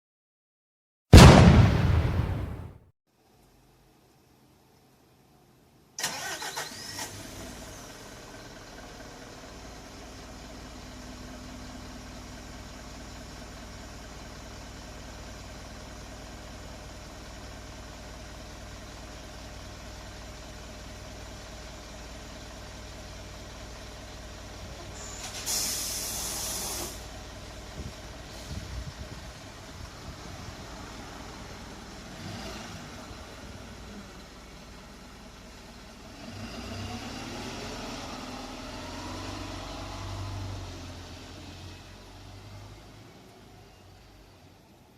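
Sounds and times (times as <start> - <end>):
diesel bus engine starting and idling: 5.8 - 44.9
compressed air hiss: 25.0 - 27.1.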